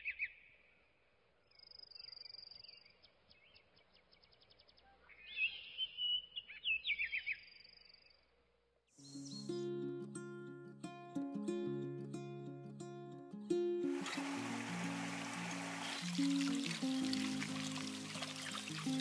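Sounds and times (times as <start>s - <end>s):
plucked guitar music: 9.1s - 19.0s
birds chirping and twittering: 14.1s - 19.0s.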